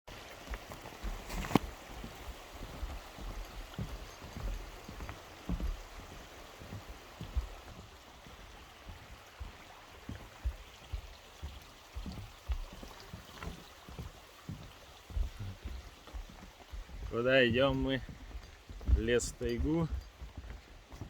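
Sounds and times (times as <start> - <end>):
stream water flowing: 0.1 - 21.0
irregular low thumps: 14.1 - 20.5.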